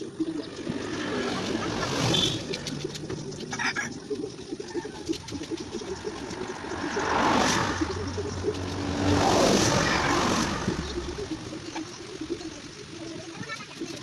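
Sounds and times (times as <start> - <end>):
motor vehicles passing: 0.0 - 14.0.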